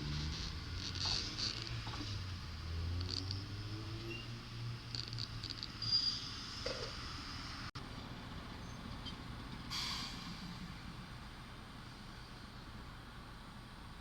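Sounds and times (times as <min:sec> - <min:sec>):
faint steady rumble: 0:00.0 - 0:05.9
short hiss: 0:09.7 - 0:10.4.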